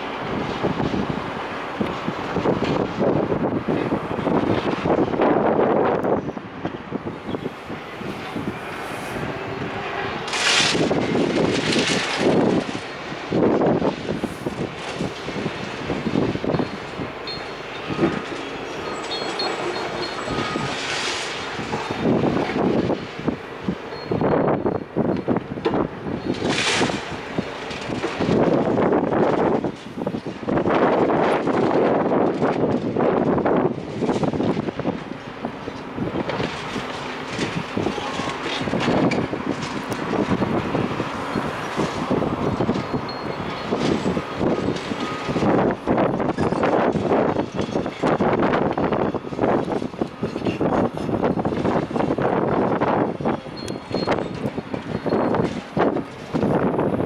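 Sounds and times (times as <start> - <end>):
demolition machinery working: 0.0 - 57.0
wind buffeting microphone: 0.0 - 57.0
rubble and metal clattering: 25.1 - 56.8
rubble crunching and clattering: 25.7 - 40.7.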